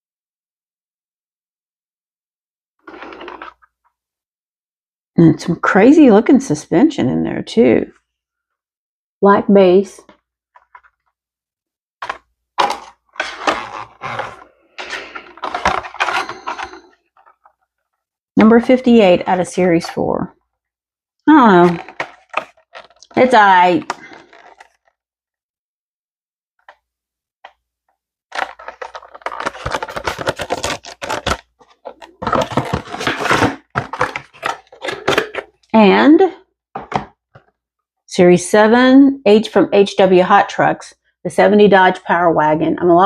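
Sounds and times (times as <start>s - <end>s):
plastic blister pack crinkling: 12.0s - 17.4s, 21.6s - 24.9s, 28.3s - 35.5s.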